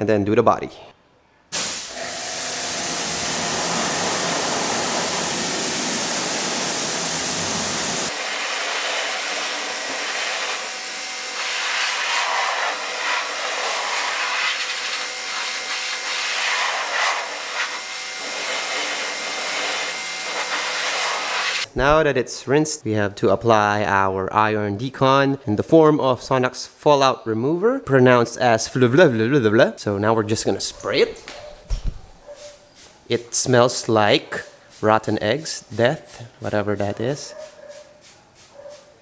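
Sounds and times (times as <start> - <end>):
pressure washer spraying: 1.5 - 21.7, 32.4 - 39.0.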